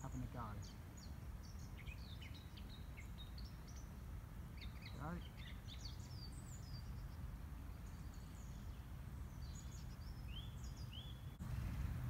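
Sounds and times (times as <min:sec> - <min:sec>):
songbirds chirping: 0:00.0 - 0:12.0
low outdoor rumble: 0:03.0 - 0:12.0.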